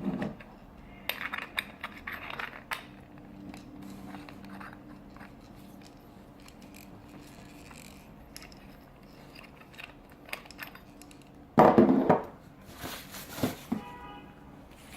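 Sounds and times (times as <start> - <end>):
small objects clicking and clattering: 0.8 - 11.4.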